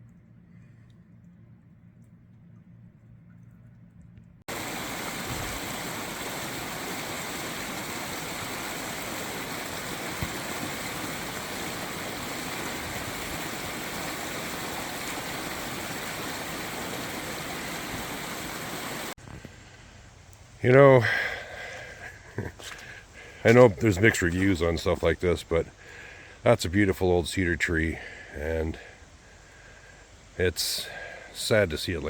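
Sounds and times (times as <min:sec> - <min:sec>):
fast-flowing water rushing: 0:04.5 - 0:19.2.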